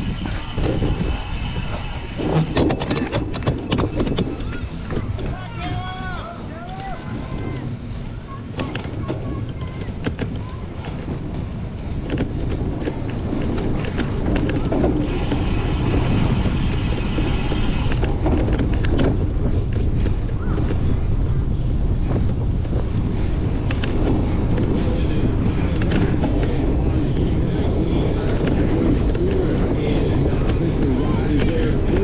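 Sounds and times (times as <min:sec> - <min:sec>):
wind buffeting microphone: 0:00.0 - 0:32.0
bright hiss: 0:15.0 - 0:18.0.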